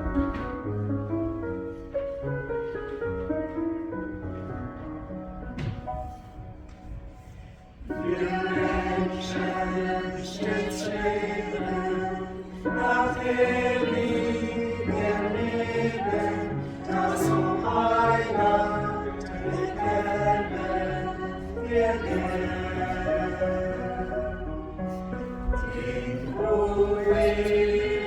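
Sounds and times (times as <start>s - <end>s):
choir singing: 7.9s - 28.0s.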